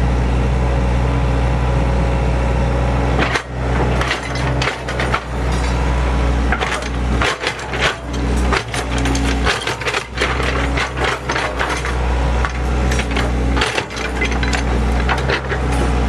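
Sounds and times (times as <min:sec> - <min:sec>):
heavy machine engine running: 0:00.0 - 0:16.0
debris knocking and scraping: 0:03.2 - 0:16.0.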